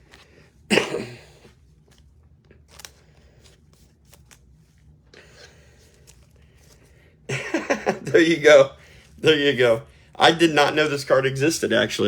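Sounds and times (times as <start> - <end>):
cards and plastic rustling: 1.4 - 7.0.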